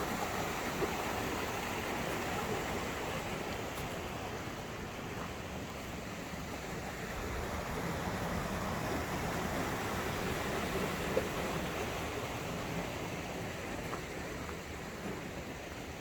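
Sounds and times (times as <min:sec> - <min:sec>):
water rushing over cascade: 0:00.0 - 0:16.0.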